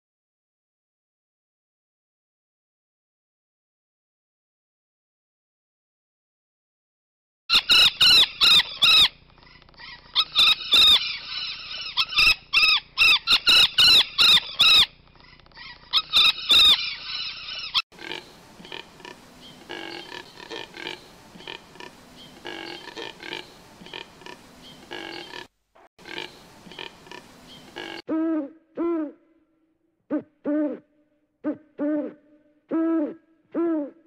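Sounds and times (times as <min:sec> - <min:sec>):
parakeet calling loudly: 0:07.5 - 0:09.2, 0:09.8 - 0:15.0, 0:15.6 - 0:17.8.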